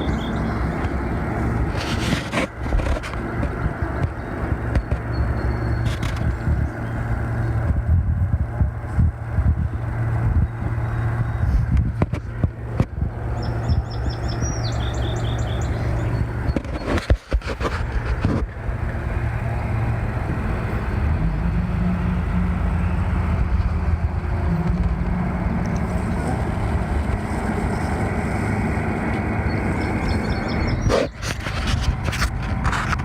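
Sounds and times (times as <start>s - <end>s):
bird chirping: 0.0s - 0.9s, 3.8s - 6.1s, 13.2s - 17.0s, 29.4s - 31.2s
barge engine droning: 0.0s - 33.0s.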